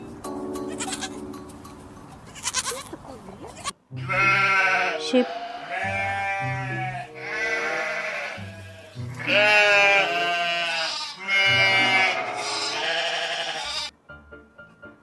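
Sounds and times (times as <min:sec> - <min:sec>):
background music: 0:00.0 - 0:02.3, 0:03.9 - 0:10.6, 0:11.3 - 0:12.9, 0:13.7 - 0:15.0
sheep bleating: 0:00.7 - 0:01.2, 0:02.4 - 0:13.9.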